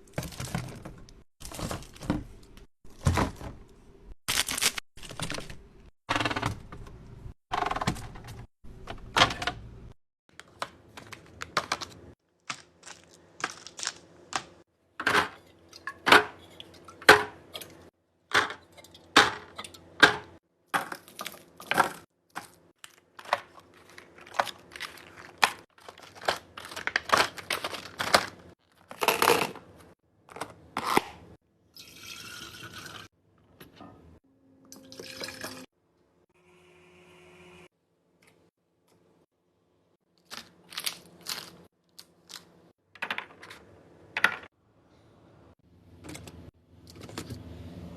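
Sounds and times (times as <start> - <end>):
packaging crinkling: 4.3 - 5.5, 22.4 - 29.4, 40.2 - 42.5.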